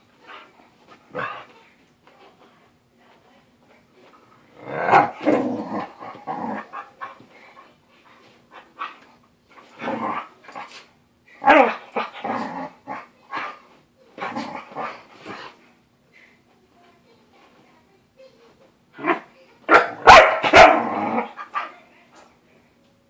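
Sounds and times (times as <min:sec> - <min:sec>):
dogs growling and barking: 0:04.5 - 0:07.1, 0:09.7 - 0:10.8, 0:11.4 - 0:13.6, 0:14.2 - 0:15.6, 0:19.0 - 0:21.7.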